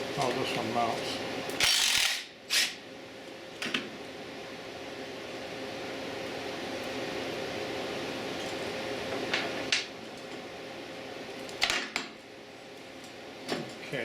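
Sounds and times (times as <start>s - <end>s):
steady low shop hum: 0.0s - 14.0s
pneumatic tool hissing: 1.6s - 2.8s.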